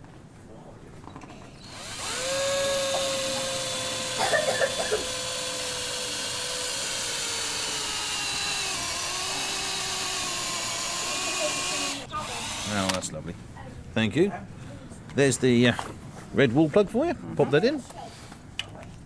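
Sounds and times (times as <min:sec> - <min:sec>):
power drill drilling into wall: 0:01.6 - 0:13.1.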